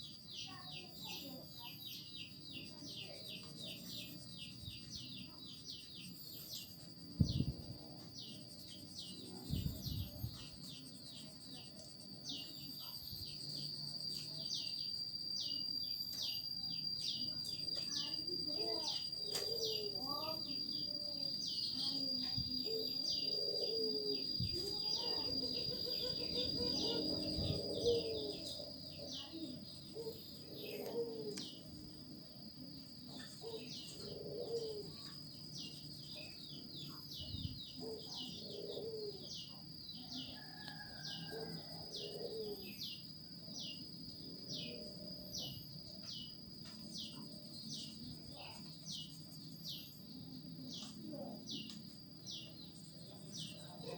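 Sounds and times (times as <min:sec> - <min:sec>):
birds chirping: 0:00.0 - 0:53.9
high-pitched whine: 0:01.1 - 0:40.4
lower bird calls: 0:12.3 - 0:53.9.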